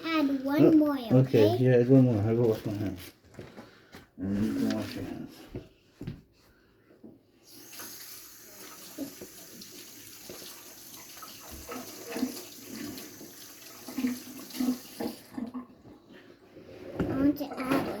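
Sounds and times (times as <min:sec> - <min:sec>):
tap running into sink: 0:07.7 - 0:15.5.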